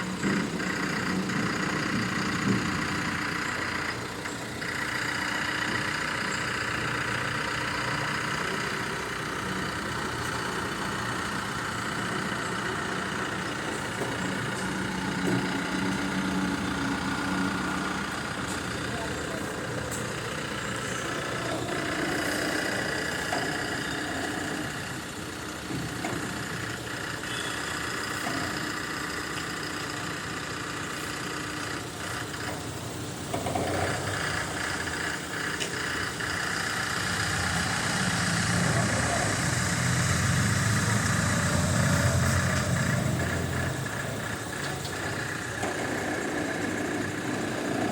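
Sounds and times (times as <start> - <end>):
engine idling: 0.0 - 47.9
faint voices: 17.1 - 24.6, 36.6 - 41.7.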